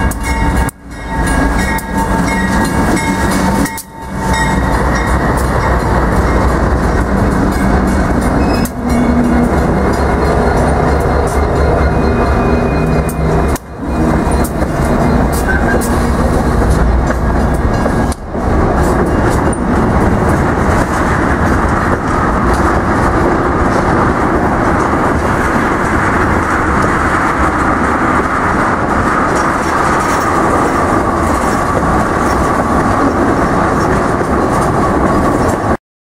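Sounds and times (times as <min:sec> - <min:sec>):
high-pitched whine: 0:00.0 - 0:19.9
freight train wheels rumbling: 0:00.0 - 0:35.8.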